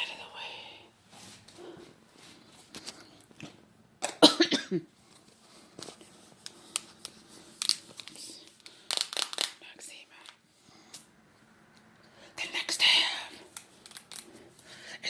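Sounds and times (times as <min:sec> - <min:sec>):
person coughing: 0:04.0 - 0:04.9.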